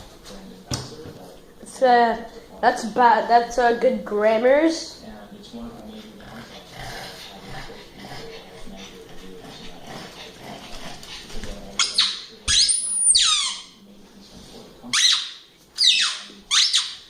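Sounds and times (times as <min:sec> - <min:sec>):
dog whining: 0:11.8 - 0:13.8.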